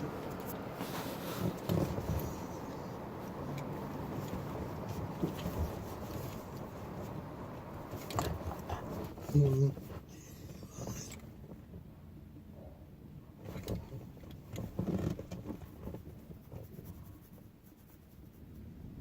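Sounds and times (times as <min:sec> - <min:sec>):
car wash spray and machinery: 0:00.0 - 0:11.2
faint low hum: 0:00.0 - 0:19.0.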